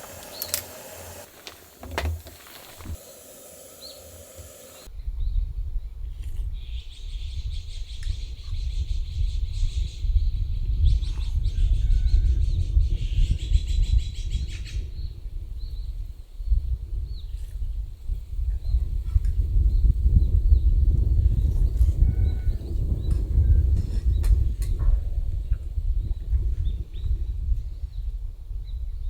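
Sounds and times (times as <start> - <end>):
birds chirping in high trills: 0.0 - 1.8, 2.4 - 4.9.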